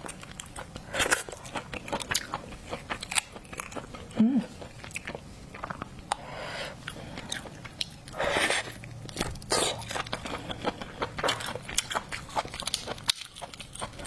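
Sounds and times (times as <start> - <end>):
person chewing seafood: 0.0 - 14.0.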